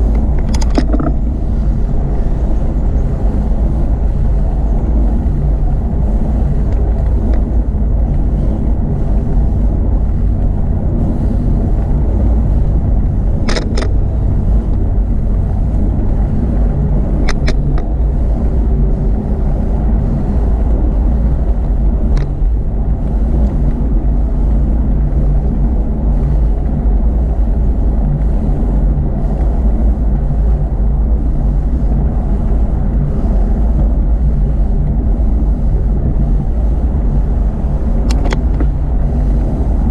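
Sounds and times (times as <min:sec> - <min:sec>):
bicycle clicks: 0:00.0 - 0:03.3, 0:11.5 - 0:18.8
wind and road noise: 0:00.0 - 0:39.9.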